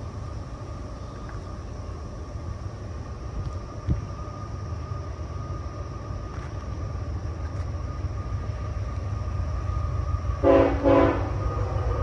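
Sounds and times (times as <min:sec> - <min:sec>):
train rumbling: 0:00.0 - 0:12.0
train horn blasts: 0:10.4 - 0:12.0.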